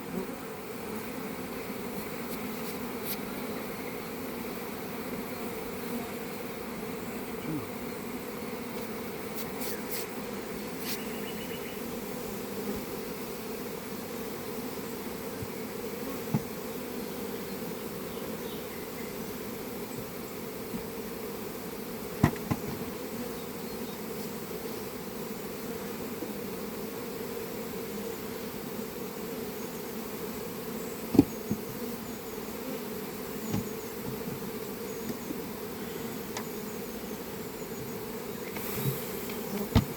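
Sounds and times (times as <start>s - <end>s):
honeybees buzzing: 0.0s - 39.9s
sharp knocks: 31.1s - 31.7s.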